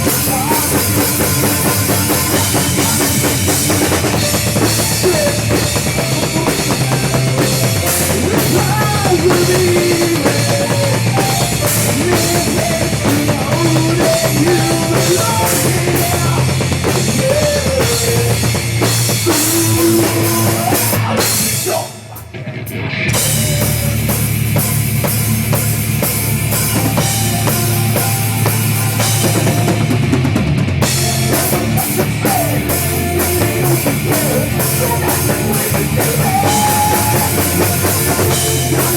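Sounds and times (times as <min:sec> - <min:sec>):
rock music with drums: 0:00.0 - 0:38.9.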